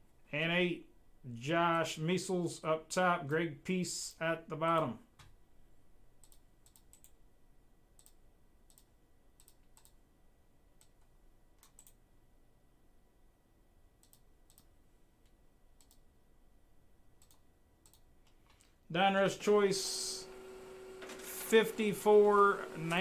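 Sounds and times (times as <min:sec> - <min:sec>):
faint clicks: 0:08.0 - 0:10.0, 0:17.2 - 0:18.8.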